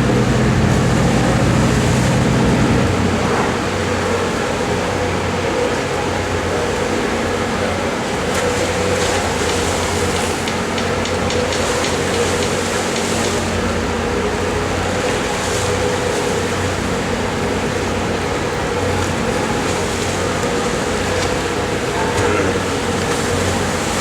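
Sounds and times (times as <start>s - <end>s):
ferry engines humming: 0.0s - 24.0s.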